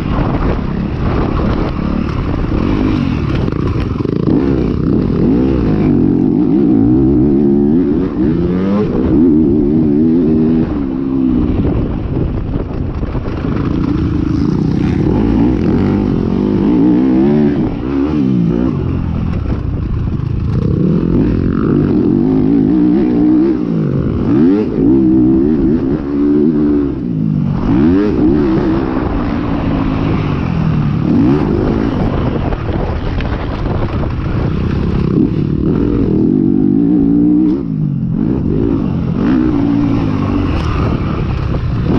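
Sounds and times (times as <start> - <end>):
motocross bike engine revving: 0.0 - 11.9, 13.4 - 19.4, 20.0 - 33.0, 34.0 - 41.9.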